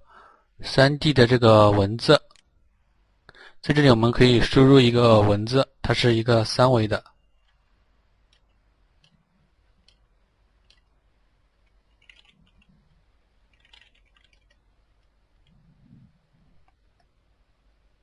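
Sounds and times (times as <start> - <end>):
keyboard and mouse clicks: 8.3 - 9.2, 9.8 - 10.0, 10.6 - 11.0, 11.6 - 12.8, 13.5 - 15.6.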